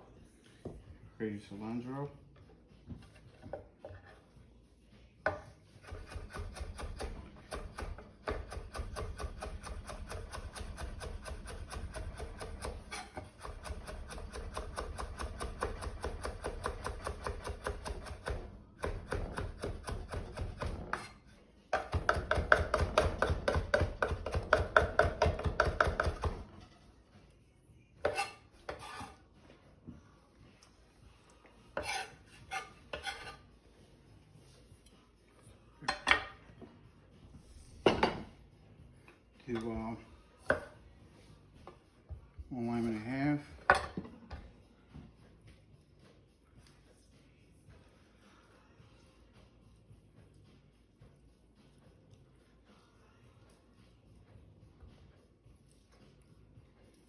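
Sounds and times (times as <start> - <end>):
knife chopping on cutting board: 5.3 - 21.1, 21.8 - 26.5, 31.8 - 33.4.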